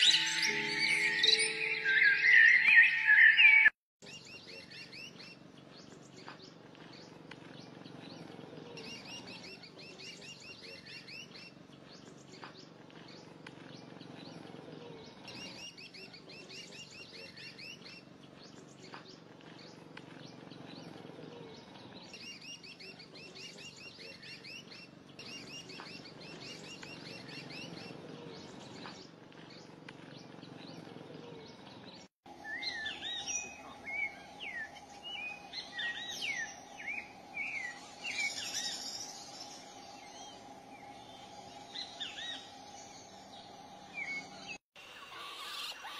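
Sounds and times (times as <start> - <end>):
bird singing rapid high notes: 0.0 - 3.8
quick rising and falling chirps: 0.0 - 3.8
steady hum: 32.3 - 44.9.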